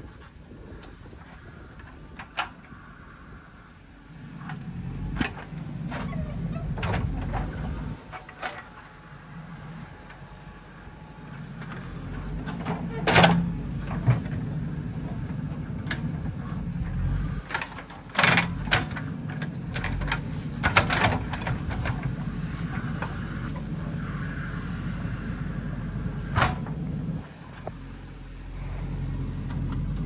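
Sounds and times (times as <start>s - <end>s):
diesel engine running: 0.1s - 30.0s
digging gear knocks and clanks: 15.1s - 24.0s.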